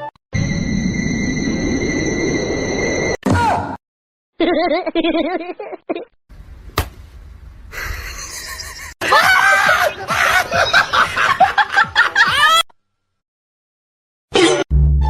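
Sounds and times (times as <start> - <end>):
person laughing: 4.4 - 6.1, 7.7 - 12.7.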